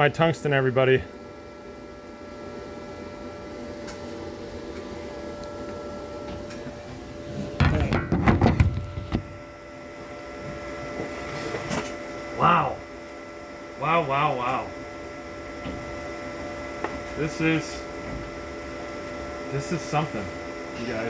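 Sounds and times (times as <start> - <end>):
welding machine electrical hum: 0.0 - 21.0
knocking and rustling handling noise: 6.2 - 9.4.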